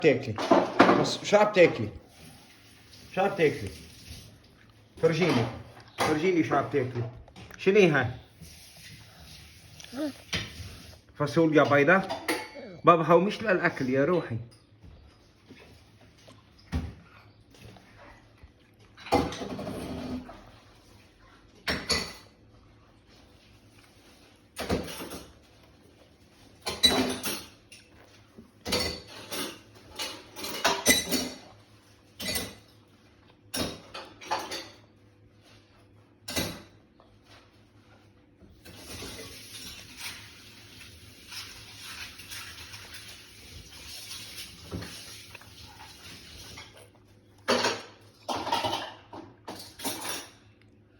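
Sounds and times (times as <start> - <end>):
kitchenware clinking: 11.5 - 12.6, 21.6 - 22.4, 26.6 - 27.7, 28.6 - 31.5, 33.5 - 35.0, 47.4 - 50.6.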